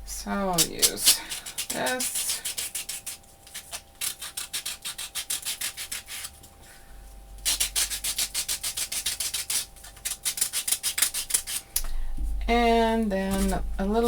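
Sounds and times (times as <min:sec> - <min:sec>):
tool scraping paper edges: 0:00.6 - 0:06.3.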